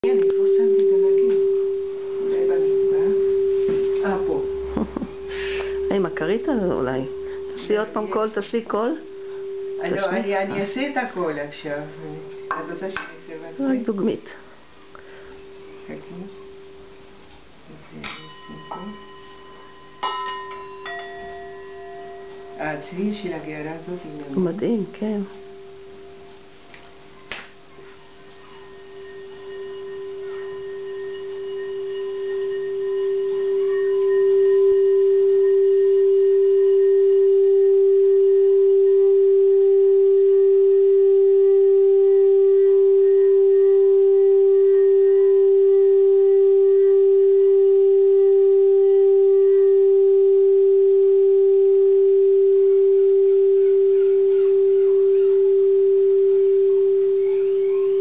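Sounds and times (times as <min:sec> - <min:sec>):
singing bowl ringing: 0:00.0 - 0:17.1, 0:17.9 - 0:58.0.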